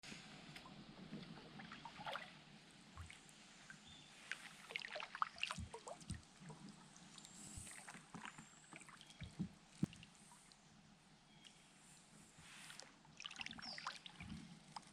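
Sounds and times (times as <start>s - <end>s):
water lapping and trickling: 0.2s - 14.9s
small splashes: 4.3s - 10.6s, 12.8s - 14.9s.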